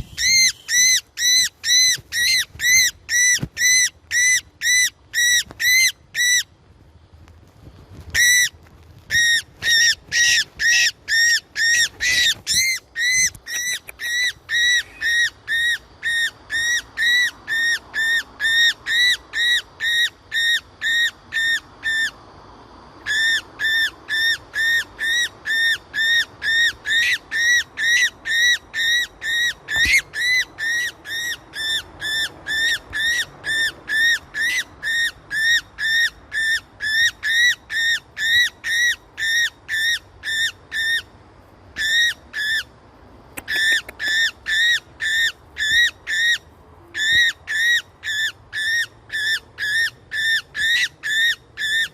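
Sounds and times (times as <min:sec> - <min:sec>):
bird calling high notes: 0:00.0 - 0:02.9.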